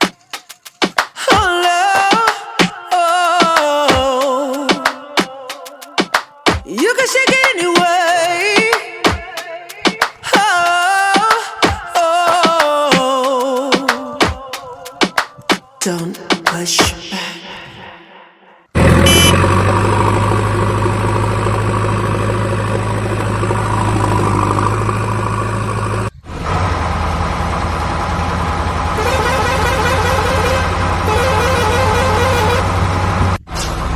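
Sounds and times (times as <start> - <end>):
horn toot: 18.8 - 19.5, 29.0 - 32.8
vehicle engine humming: 18.8 - 33.9.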